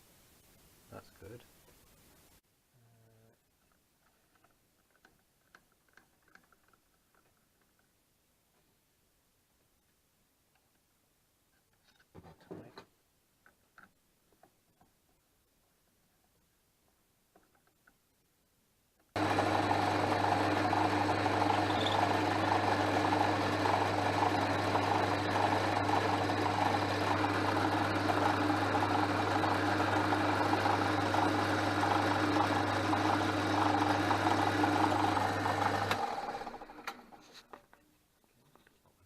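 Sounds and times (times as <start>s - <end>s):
metal lathe motor humming: 19.2s - 37.1s.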